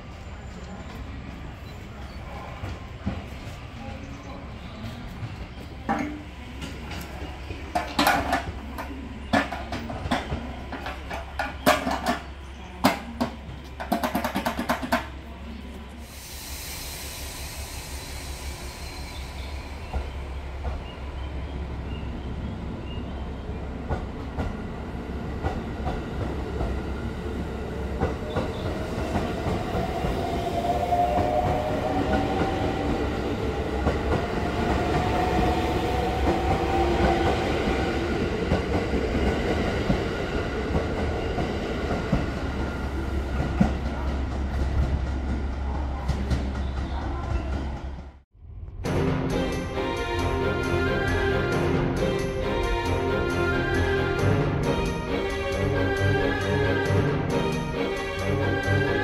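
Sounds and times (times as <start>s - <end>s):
train coupling clanks and hisses: 5.8s - 15.2s, 16.0s - 19.5s.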